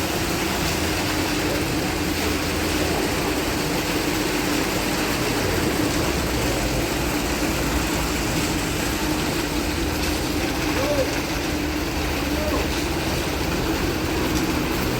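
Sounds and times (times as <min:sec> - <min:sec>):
truck engine running: 0:00.0 - 0:14.9.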